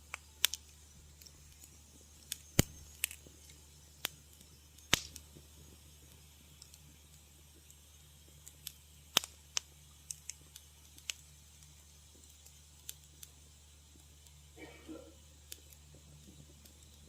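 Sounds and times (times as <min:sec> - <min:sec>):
faint low hum: 0:00.0 - 0:17.0
wood fire crackling: 0:00.0 - 0:17.0.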